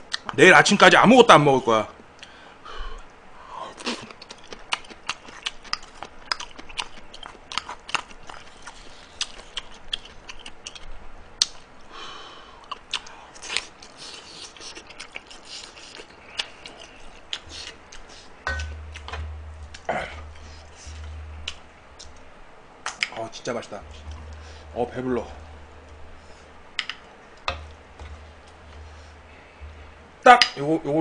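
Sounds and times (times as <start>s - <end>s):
person chewing with wet mouth clicks: 3.8s - 11.7s, 12.6s - 19.1s, 26.8s - 27.8s.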